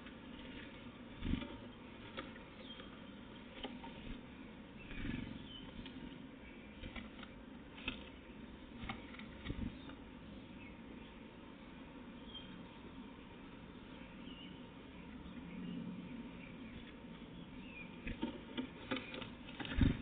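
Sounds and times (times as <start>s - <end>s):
faint high bird chirps: 1.6s - 3.6s, 4.8s - 6.8s, 12.2s - 13.1s, 13.8s - 18.2s.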